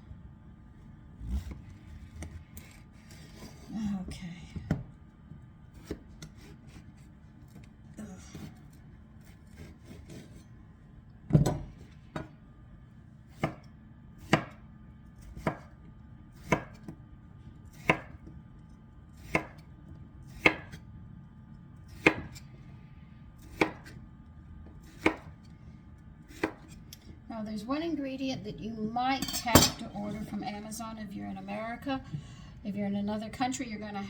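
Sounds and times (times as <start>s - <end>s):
knife chopping on cutting board: 5.8s - 6.8s, 13.3s - 13.6s, 14.2s - 14.6s, 15.2s - 15.8s, 16.4s - 16.9s, 17.7s - 18.3s, 19.2s - 19.7s, 20.3s - 20.8s, 21.9s - 22.4s, 23.5s - 24.0s, 24.8s - 25.4s, 26.3s - 26.8s.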